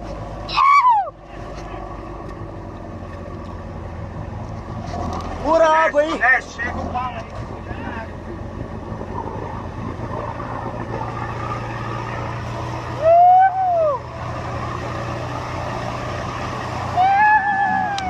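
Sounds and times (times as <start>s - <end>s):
truck engine running: 0.0s - 18.0s
person yelling: 0.5s - 1.2s, 13.0s - 14.0s, 16.9s - 18.0s.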